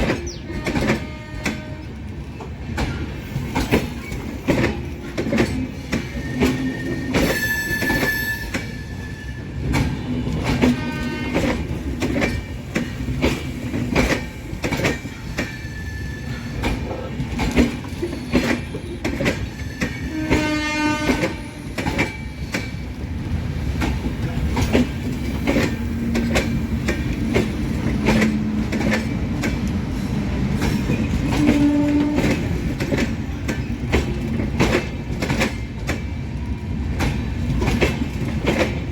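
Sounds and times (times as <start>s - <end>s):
train wheels clattering over rail joints: 0.0s - 38.9s
train horn: 0.5s - 2.0s, 6.2s - 9.4s, 10.5s - 11.7s, 20.0s - 21.8s, 31.2s - 32.6s.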